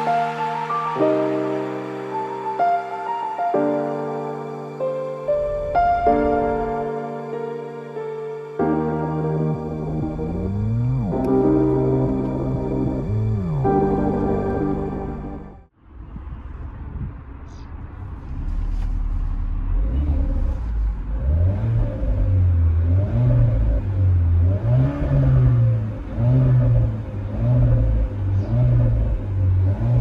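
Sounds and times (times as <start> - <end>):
car engine revving: 9.2 - 30.0.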